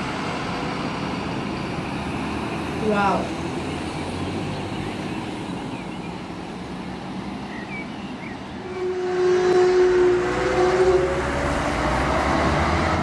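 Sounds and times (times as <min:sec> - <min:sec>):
fire truck engines rumbling: 0:00.0 - 0:13.0
traffic: 0:00.0 - 0:13.0
loud steady siren tone: 0:08.6 - 0:12.4.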